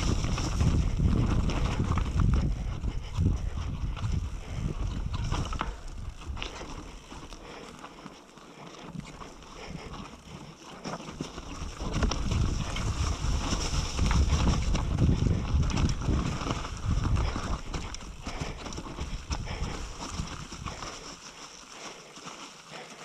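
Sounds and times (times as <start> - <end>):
wind buffeting microphone: 0.0 - 7.6, 11.1 - 21.1
mountain bike rattling over rocks: 0.0 - 23.0.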